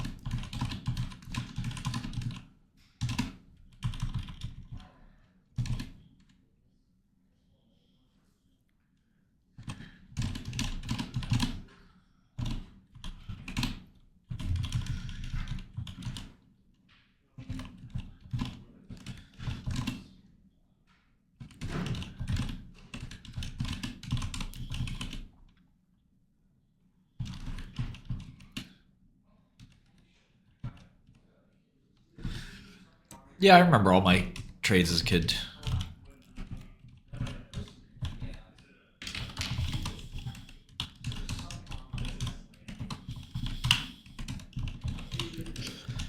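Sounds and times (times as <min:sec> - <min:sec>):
typing on computer keyboard: 0:00.0 - 0:04.8, 0:05.6 - 0:06.3, 0:09.6 - 0:11.6, 0:12.4 - 0:13.8, 0:14.4 - 0:16.3, 0:17.5 - 0:20.0, 0:21.5 - 0:25.2, 0:39.2 - 0:46.0.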